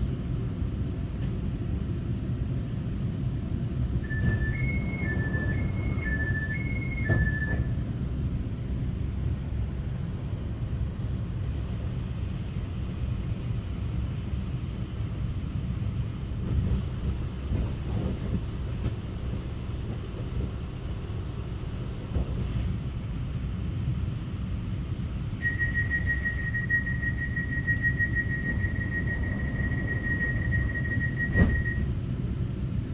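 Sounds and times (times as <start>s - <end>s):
train cabin rumble: 0.0s - 32.9s
two-pitch beeps: 4.1s - 7.7s.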